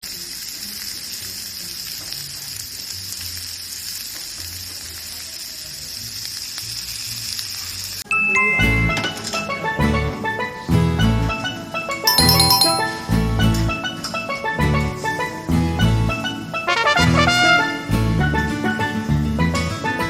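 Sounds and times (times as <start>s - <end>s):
steak sizzling on hot plate: 0.0s - 8.0s.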